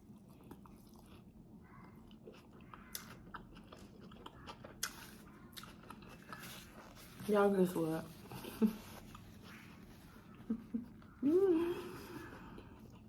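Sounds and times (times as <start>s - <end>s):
faint chewing: 0.0s - 13.0s.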